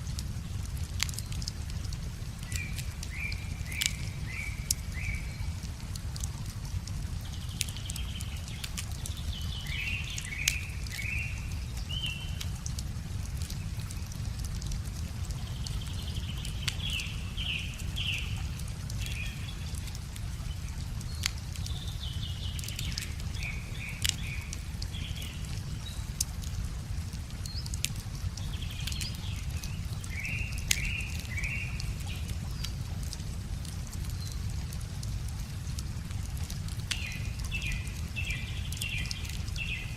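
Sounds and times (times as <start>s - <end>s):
wood fire crackling and popping: 0.0s - 39.9s
birds singing: 2.4s - 5.7s, 7.1s - 12.5s, 15.4s - 26.2s, 27.4s - 32.8s, 36.9s - 39.9s.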